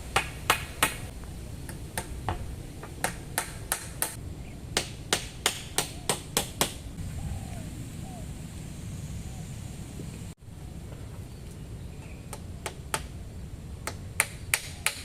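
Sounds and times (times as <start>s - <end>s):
steady low rumble: 1.0s - 6.1s, 6.7s - 14.2s.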